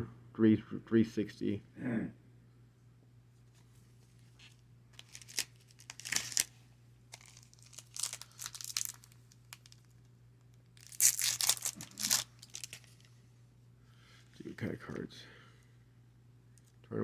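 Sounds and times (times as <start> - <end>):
plastic wrapper crinkling: 4.4 - 10.1, 10.7 - 13.1.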